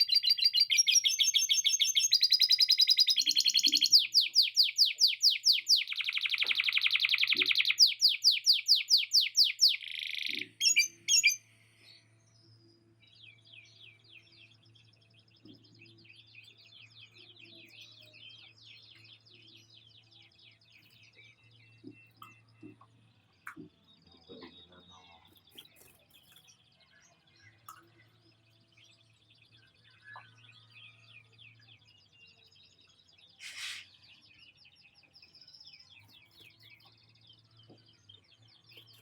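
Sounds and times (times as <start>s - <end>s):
canary singing: 0.0s - 11.6s
soft faint twittering: 0.0s - 39.0s.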